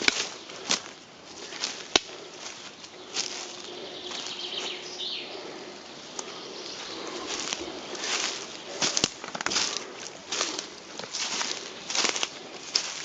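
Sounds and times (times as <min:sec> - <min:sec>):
twigs snapping: 0:00.0 - 0:03.4, 0:07.3 - 0:13.0
footsteps rustling through grass: 0:00.0 - 0:13.0
songbirds calling: 0:00.0 - 0:13.0.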